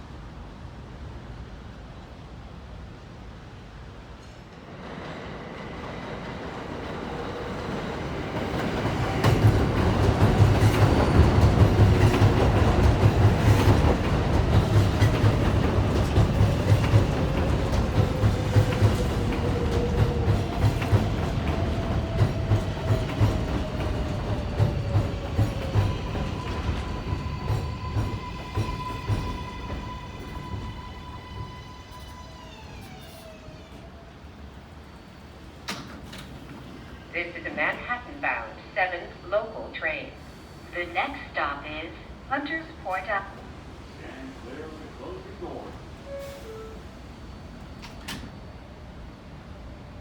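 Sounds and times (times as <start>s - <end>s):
train motor whine: 26.2s - 34.2s.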